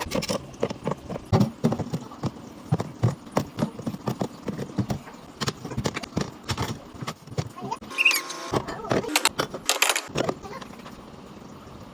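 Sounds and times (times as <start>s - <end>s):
items knocking on fridge shelves: 0.2s - 7.7s.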